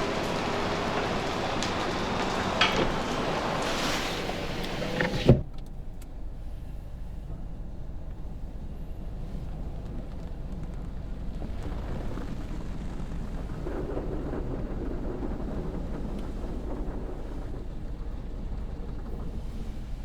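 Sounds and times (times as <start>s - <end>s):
water spray rushing: 0.0s - 5.4s
car wash equipment rumbling: 0.0s - 20.0s.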